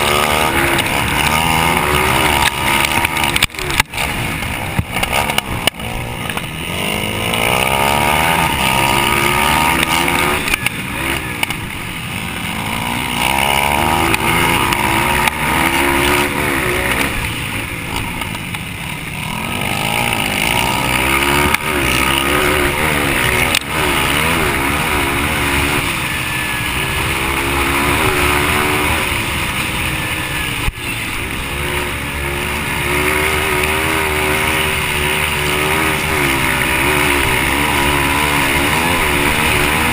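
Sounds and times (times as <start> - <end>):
dirt bike engine racing: 0.0 - 39.9.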